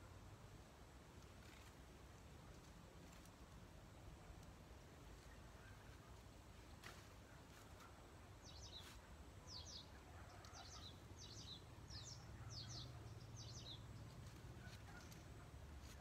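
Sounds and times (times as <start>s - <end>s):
small bird chirping: 8.4s - 16.0s.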